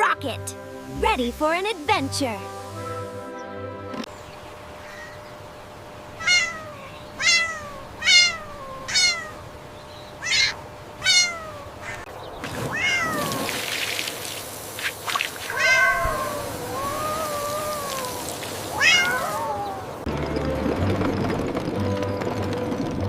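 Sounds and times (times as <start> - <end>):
hiss-like noise: 0.6 - 3.4, 13.4 - 19.8
cat meowing: 6.2 - 9.4, 10.2 - 12.0, 12.7 - 13.5, 15.5 - 20.0.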